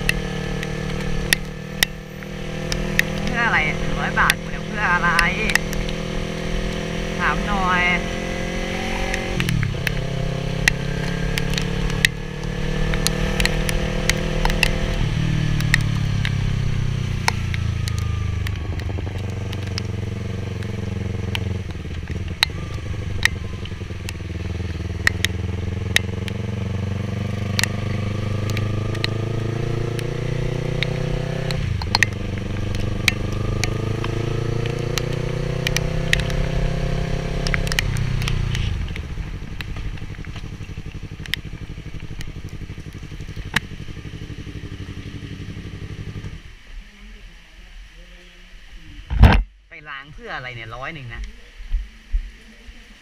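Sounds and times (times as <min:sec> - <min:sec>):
sharp ticks: 0:00.0 - 0:07.5, 0:08.6 - 0:16.4, 0:17.2 - 0:38.7, 0:39.5 - 0:44.2
motorcycle engine revving: 0:00.0 - 0:47.2.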